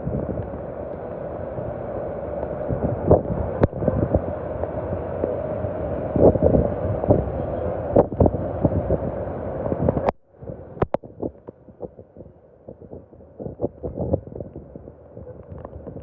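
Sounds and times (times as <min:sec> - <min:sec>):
wind buffeting microphone: 0:00.0 - 0:16.0
heavy rain: 0:00.2 - 0:10.0.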